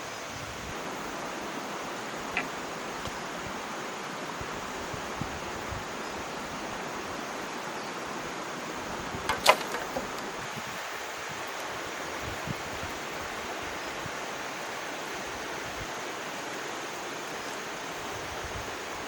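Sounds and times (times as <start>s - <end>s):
rushing outdoor noise: 0.0s - 19.0s
clatter of sharp knocks: 9.3s - 10.2s.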